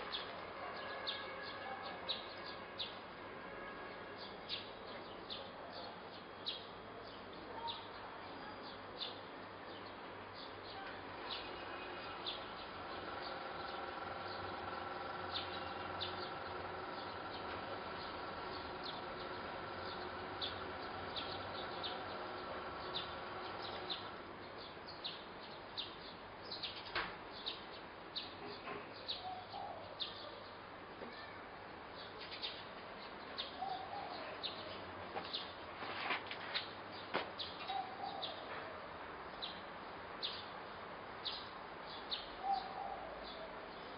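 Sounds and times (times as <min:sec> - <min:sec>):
small birds chirping: 0:04.2 - 0:35.7, 0:36.6 - 0:38.5, 0:39.3 - 0:43.9
steady hum: 0:12.1 - 0:24.4.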